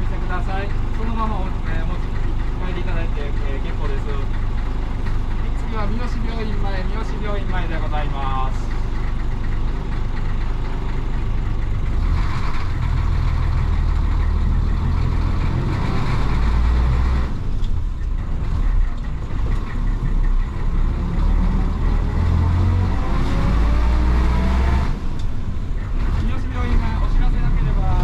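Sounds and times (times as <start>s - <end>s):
bus diesel engine running: 0.0s - 28.0s.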